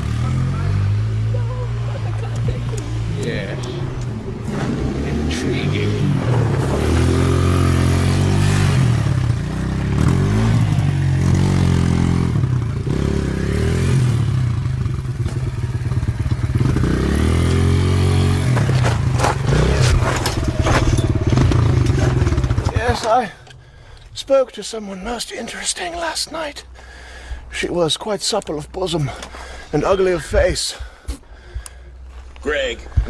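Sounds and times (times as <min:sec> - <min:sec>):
dirt bike engine revving: 0:00.0 - 0:23.4.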